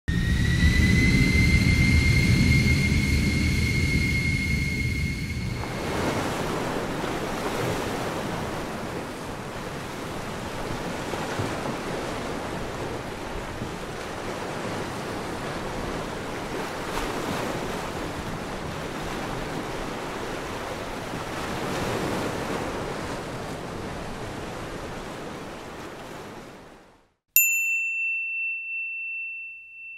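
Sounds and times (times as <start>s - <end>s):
sea waves washing: 0.1s - 26.8s.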